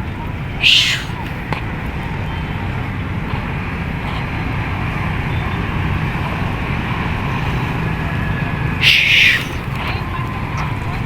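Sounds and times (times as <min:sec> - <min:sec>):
city traffic rumble: 0:00.0 - 0:11.0
loud hissing burst: 0:00.6 - 0:01.2, 0:08.8 - 0:09.6.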